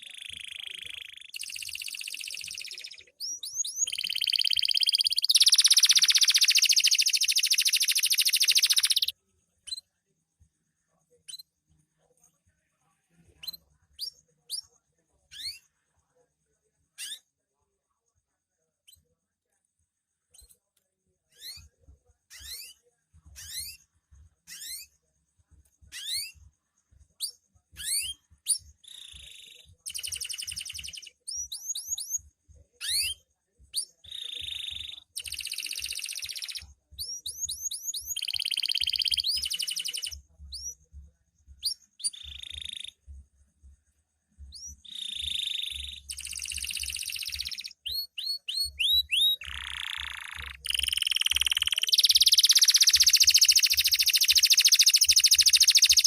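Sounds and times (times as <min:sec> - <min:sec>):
canary singing: 0:00.0 - 0:09.8, 0:13.4 - 0:14.7, 0:15.3 - 0:15.7, 0:17.0 - 0:17.2, 0:21.3 - 0:21.7, 0:22.3 - 0:23.8, 0:24.4 - 0:25.0, 0:25.9 - 0:26.4, 0:27.2 - 0:40.9, 0:41.5 - 0:43.2, 0:44.4 - 0:56.0.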